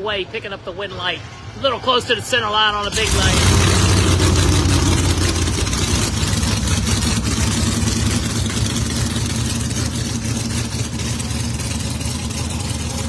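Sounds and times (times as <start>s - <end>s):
race car engine idling: 2.9s - 13.0s.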